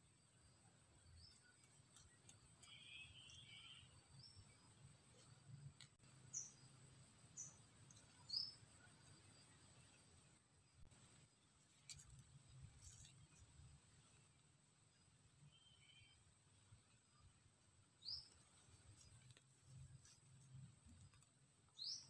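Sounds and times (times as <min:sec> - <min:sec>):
small birds calling: 0:06.1 - 0:10.9, 0:21.7 - 0:22.0.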